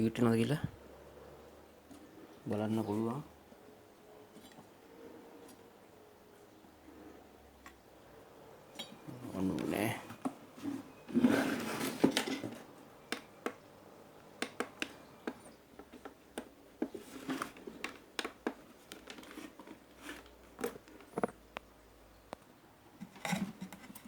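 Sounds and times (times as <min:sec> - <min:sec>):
clicks and taps of tools: 0:14.4 - 0:17.0.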